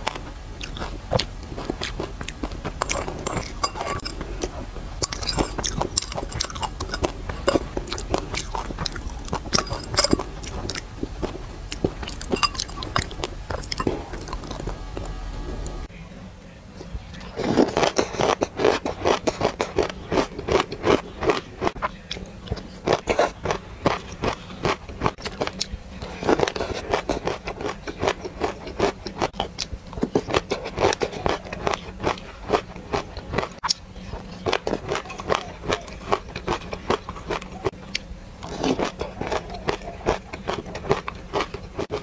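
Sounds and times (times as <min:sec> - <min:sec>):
chewing crunchy grains: 0:00.0 - 0:15.9, 0:16.7 - 0:42.0.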